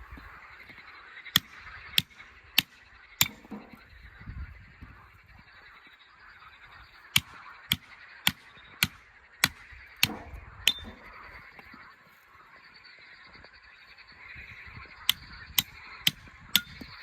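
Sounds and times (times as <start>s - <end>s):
sharp knocks: 8.8s - 11.1s.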